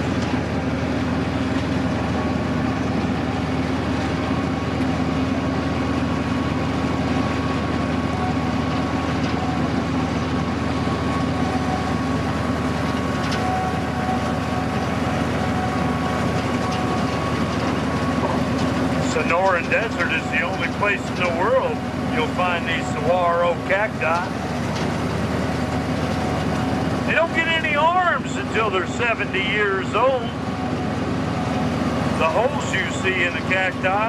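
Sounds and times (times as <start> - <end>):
train rumble: 0.0 - 34.0.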